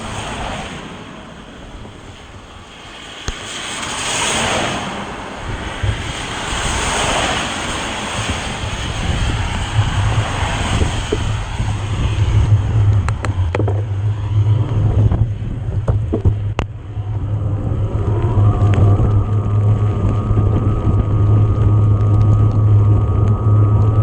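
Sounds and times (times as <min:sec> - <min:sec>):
wind rumble on microphone: 0:00.0 - 0:24.0
electric motor whine: 0:08.4 - 0:24.0
bike clicks and knocks: 0:12.9 - 0:14.0.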